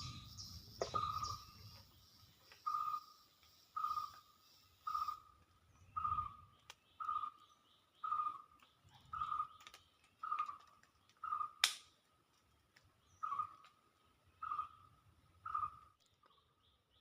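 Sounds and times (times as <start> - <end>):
sharp click: 11.6 - 11.9.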